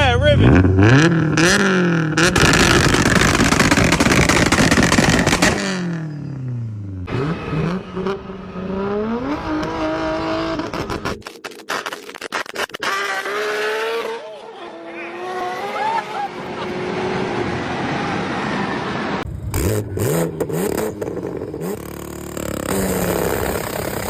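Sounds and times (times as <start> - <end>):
sharp exhaust bangs: 0.2 - 8.2
car engine at high revs: 0.4 - 11.2, 12.6 - 24.0
anti-lag popping and crackling: 2.3 - 5.7, 10.7 - 13.0.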